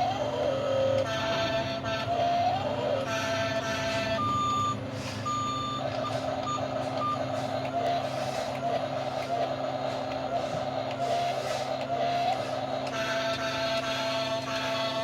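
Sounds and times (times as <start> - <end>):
steady hum: 0.0 - 15.0
short reversing beeps: 3.7 - 8.7.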